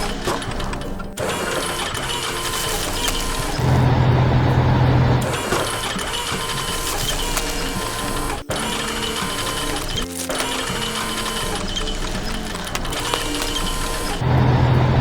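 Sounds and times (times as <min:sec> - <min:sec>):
heavy machinery clatter: 0:00.0 - 0:15.0
loud low engine drone: 0:02.9 - 0:06.1, 0:11.5 - 0:15.0.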